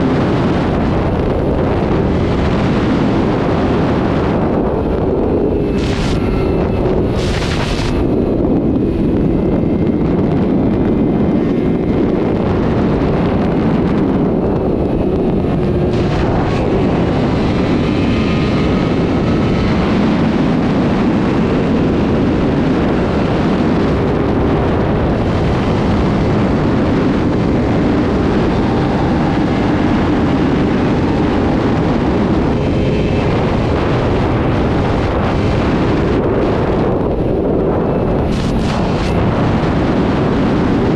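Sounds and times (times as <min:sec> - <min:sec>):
motorcycle engine running: 0:00.0 - 0:40.9
wind noise on microphone: 0:00.0 - 0:40.9.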